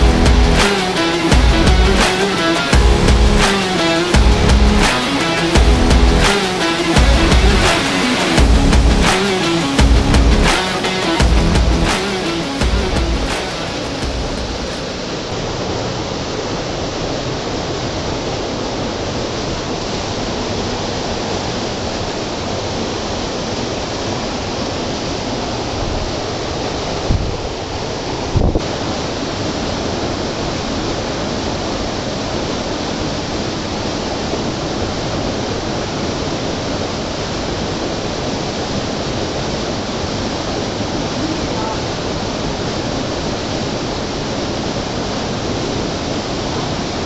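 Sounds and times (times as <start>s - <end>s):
low thumps: 0.0s - 2.1s, 2.7s - 6.4s, 7.0s - 10.6s, 11.2s - 14.7s
waterfall rushing: 0.0s - 47.0s.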